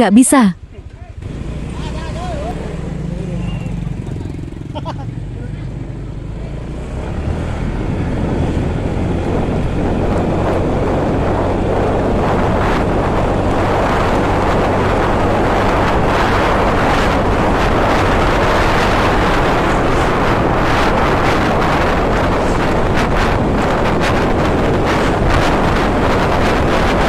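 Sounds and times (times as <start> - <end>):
motorcycle engine humming: 0.6 - 27.0
wind rushing over microphone: 5.7 - 27.0.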